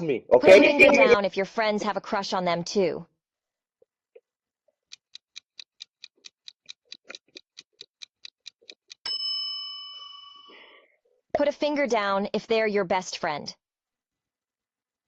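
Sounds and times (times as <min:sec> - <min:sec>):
clock ticking: 0:04.9 - 0:09.1
bell ding: 0:09.0 - 0:10.8.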